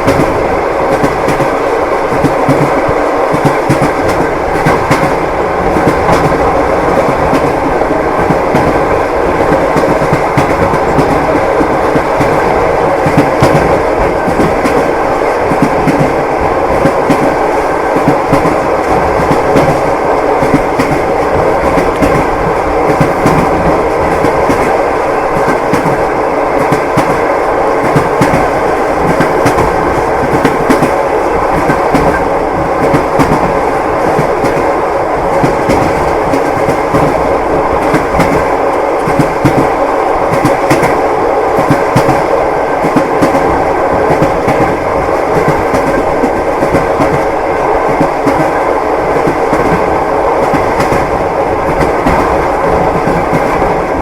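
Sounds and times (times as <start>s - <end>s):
railway carriage rumbling: 0.0s - 54.0s.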